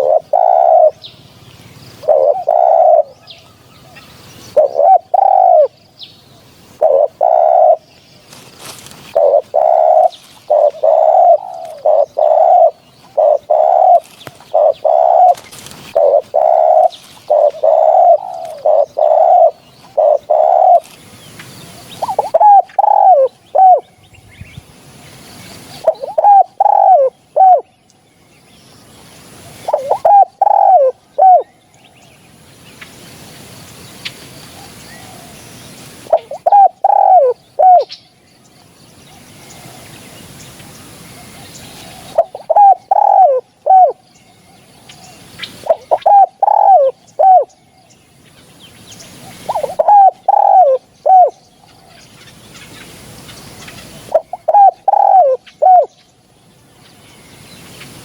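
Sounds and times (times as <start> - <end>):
dove cooing: 0.0 - 5.8, 6.4 - 21.0, 21.7 - 23.9, 25.7 - 27.7, 29.4 - 31.6, 34.6 - 38.0, 41.1 - 47.6, 49.2 - 52.4, 53.3 - 56.0.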